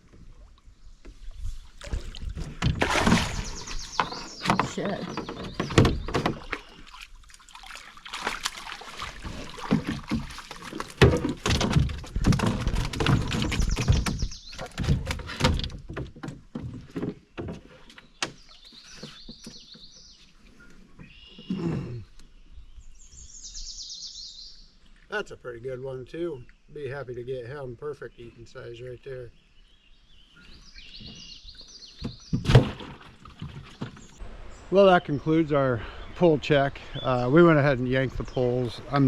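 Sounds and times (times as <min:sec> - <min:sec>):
birds chirping: 0:00.0 - 0:07.0, 0:12.4 - 0:15.7, 0:16.6 - 0:39.0
knocks and thumps in canoe: 0:00.0 - 0:20.2, 0:30.5 - 0:34.3.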